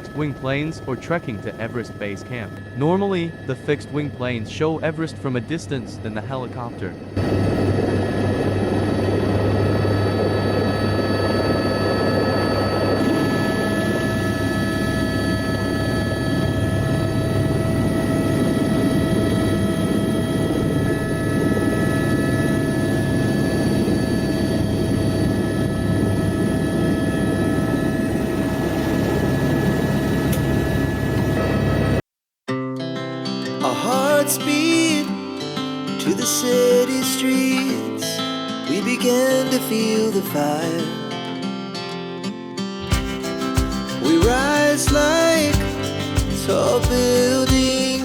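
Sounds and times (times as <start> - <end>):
helicopter rotor and turbine drone: 0.0 - 32.0, 42.8 - 48.0
whining tones: 0.0 - 32.0, 42.8 - 48.0.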